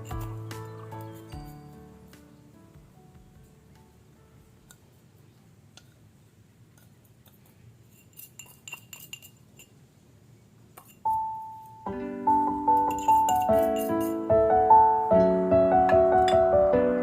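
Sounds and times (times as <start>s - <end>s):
small hard objects clinking: 0.0s - 1.8s, 6.8s - 9.8s, 12.8s - 14.2s.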